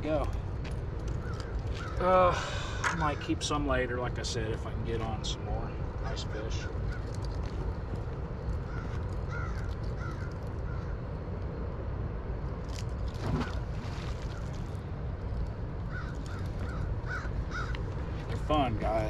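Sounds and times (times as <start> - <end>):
wind rumble: 0.0 - 19.0
river water: 12.5 - 18.7.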